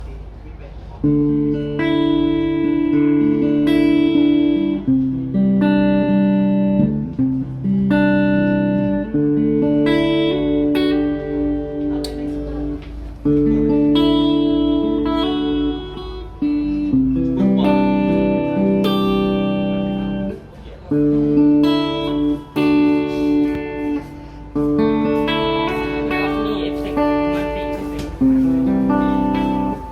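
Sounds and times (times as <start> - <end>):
clean electric guitar chords: 1.0 - 29.9.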